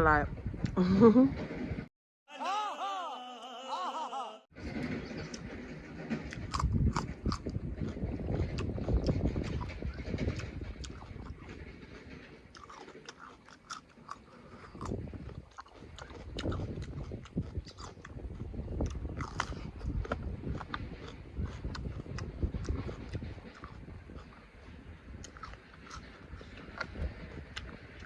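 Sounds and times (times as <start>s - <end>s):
chewing and wet mouth clicks: 12.5s - 24.4s.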